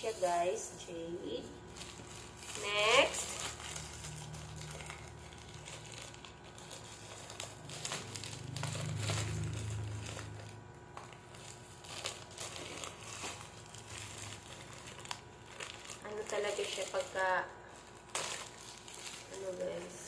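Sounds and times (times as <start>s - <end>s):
plastic wrapping crinkling: 0.0s - 20.0s
low hum: 0.8s - 16.3s.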